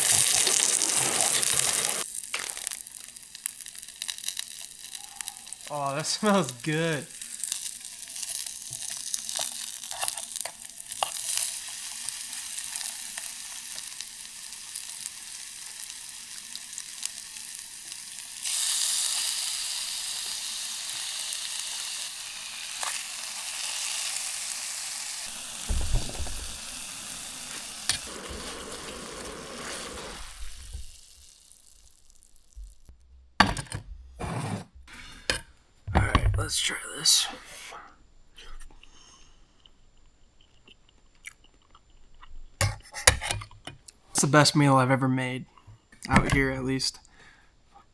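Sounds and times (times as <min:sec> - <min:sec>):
meat sizzling in a pan: 0:00.0 - 0:32.9
low knocks: 0:25.7 - 0:26.6.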